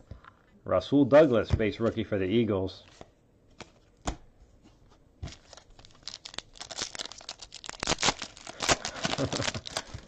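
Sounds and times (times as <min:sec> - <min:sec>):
foil wrapper tearing and crinkling: 0:05.3 - 0:10.0.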